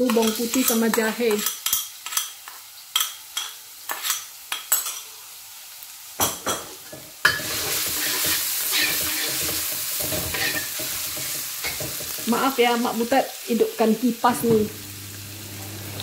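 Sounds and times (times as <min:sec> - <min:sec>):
metal utensils clinking and scraping: 0:00.0 - 0:05.1, 0:07.2 - 0:12.4
loud sizzle of frying in oil: 0:00.0 - 0:16.0.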